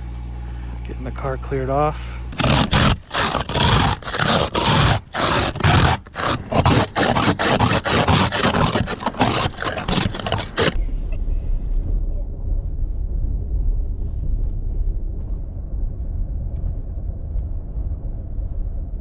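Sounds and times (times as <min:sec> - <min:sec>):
scraping ice off a car: 0:01.0 - 0:11.0.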